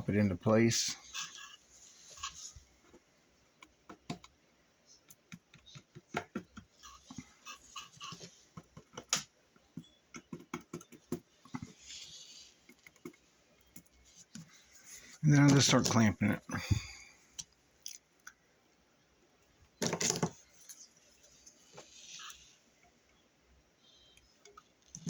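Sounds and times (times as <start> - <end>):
hands clicking and tapping speaker: 3.6 - 4.4, 5.1 - 7.3, 8.5 - 11.8.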